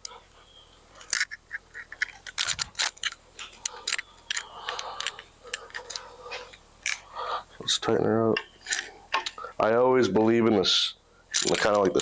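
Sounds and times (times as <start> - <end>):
metallic tool clicks: 1.0 - 6.1, 11.3 - 12.0.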